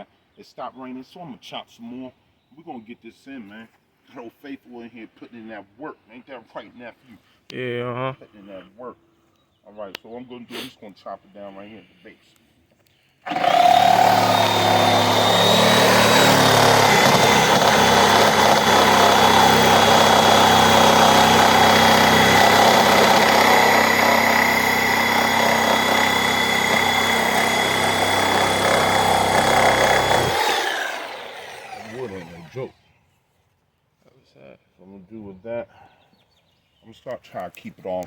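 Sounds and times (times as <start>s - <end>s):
power saw cutting wood: 13.3s - 32.7s.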